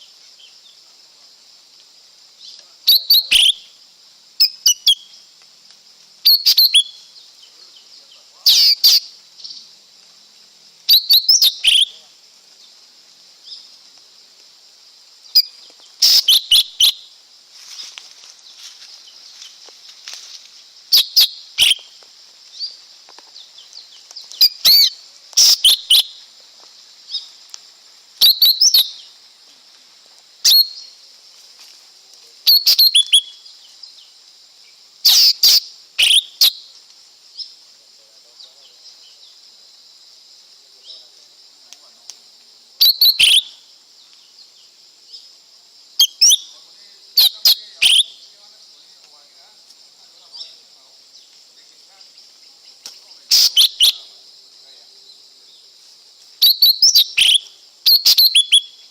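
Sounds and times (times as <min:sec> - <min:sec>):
faint high hiss: 0:00.0 - 0:58.9
bird chirping: 0:02.4 - 0:03.8, 0:04.4 - 0:05.4, 0:06.2 - 0:09.8, 0:10.8 - 0:13.8, 0:15.3 - 0:17.2, 0:20.9 - 0:26.3, 0:28.2 - 0:29.2, 0:30.4 - 0:31.0, 0:32.4 - 0:37.6, 0:42.8 - 0:45.4, 0:46.0 - 0:48.4, 0:50.1 - 0:54.2, 0:56.4 - 0:58.9.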